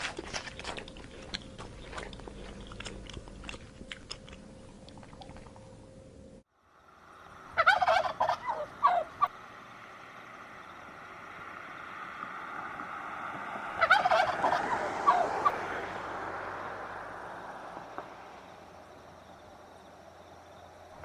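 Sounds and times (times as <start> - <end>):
outdoor background hiss: 0.0 - 21.0
turkey gobbling: 7.2 - 9.7, 12.9 - 15.9.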